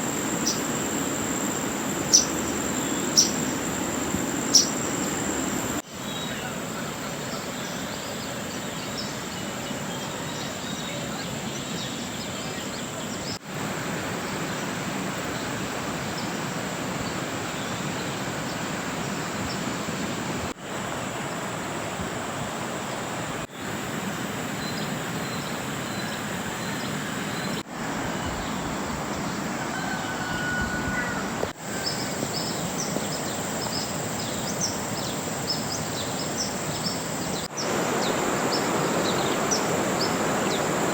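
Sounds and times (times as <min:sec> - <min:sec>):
water rushing: 0:00.0 - 0:05.8, 0:36.5 - 0:40.9
birds chirping faintly: 0:00.0 - 0:13.4
high insect drone: 0:00.0 - 0:40.9
rain: 0:37.2 - 0:40.9.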